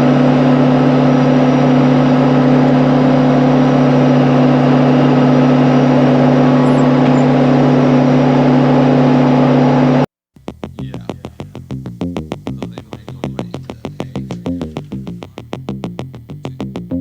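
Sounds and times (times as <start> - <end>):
tractor engine running: 0.0 - 17.0
electronic music with steady beat: 10.4 - 17.0.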